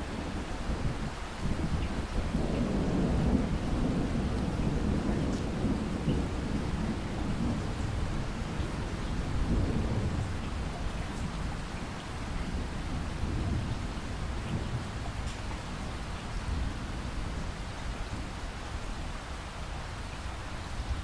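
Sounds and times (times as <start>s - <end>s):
distant thunder rumbling: 0.0s - 18.4s
steady rain: 0.0s - 21.0s
raindrops ticking: 1.7s - 16.4s.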